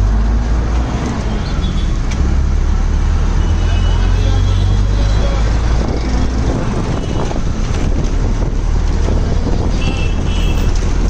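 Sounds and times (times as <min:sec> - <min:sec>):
street traffic noise: 0:00.0 - 0:11.0
wind rumbling on microphone: 0:05.2 - 0:11.0.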